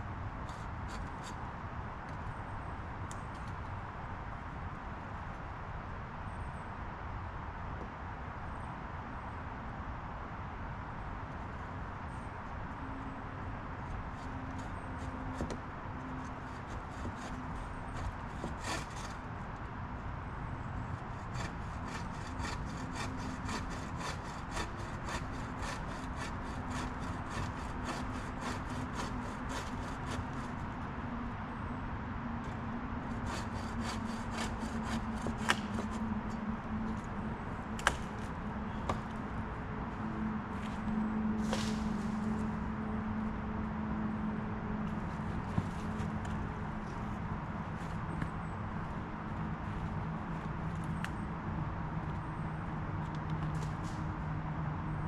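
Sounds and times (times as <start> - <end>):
hand saw cutting wood: 16.2 - 19.3, 21.0 - 30.6, 33.1 - 36.0.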